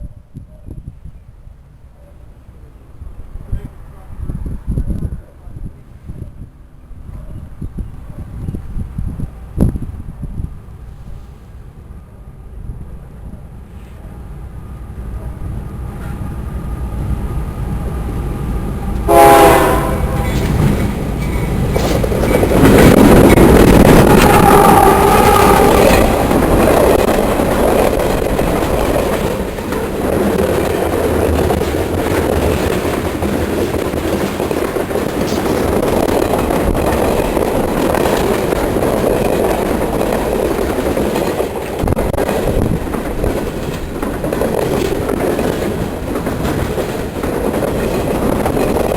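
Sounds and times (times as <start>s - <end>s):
train wheels clattering on rails: 18.9s - 48.9s
train horn blast: 19.0s - 20.6s, 24.0s - 26.1s.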